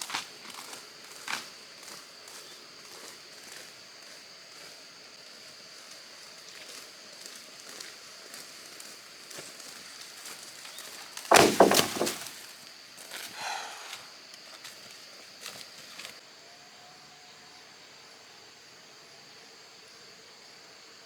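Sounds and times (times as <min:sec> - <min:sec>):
high insect buzz: 0:00.0 - 0:16.2
loud knocks and clatter: 0:11.3 - 0:12.3.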